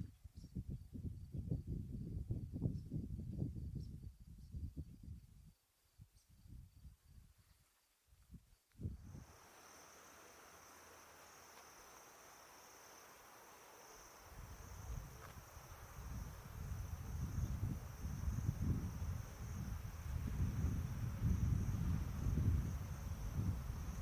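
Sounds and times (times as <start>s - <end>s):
wind rumble on microphone: 0.0s - 9.3s, 14.3s - 24.0s
insects trilling: 8.8s - 24.0s.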